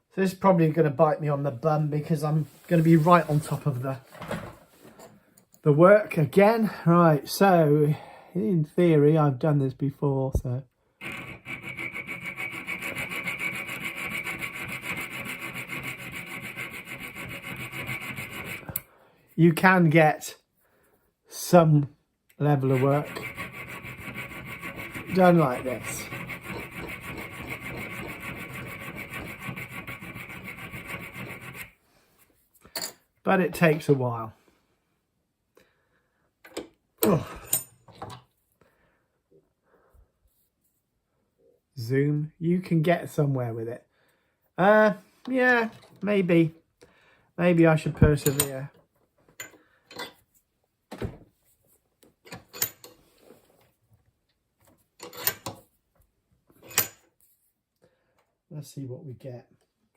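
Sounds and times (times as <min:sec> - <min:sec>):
file rasping on steel: 0:11.0 - 0:18.9, 0:22.5 - 0:31.8.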